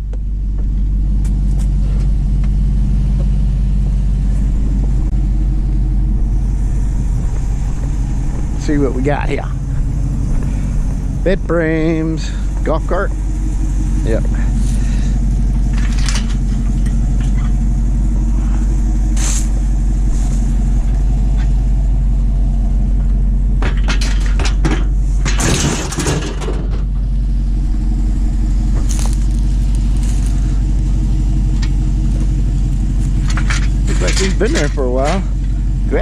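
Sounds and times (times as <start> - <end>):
vehicle engine idling: 0.0 - 36.0
metal clanks and rattles: 14.4 - 18.1, 22.9 - 27.1, 28.7 - 35.6.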